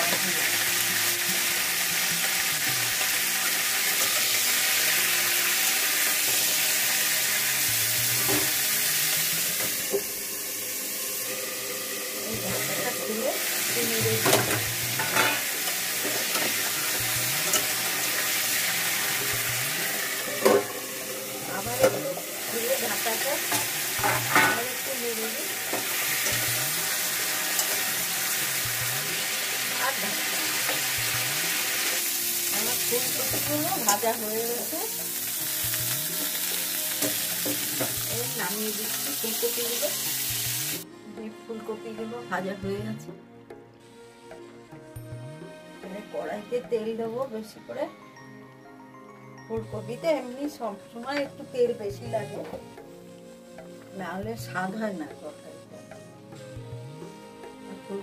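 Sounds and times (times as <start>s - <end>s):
vegetables sizzling in oil: 0.0s - 40.8s
cauliflower frying in oil: 21.5s - 40.8s.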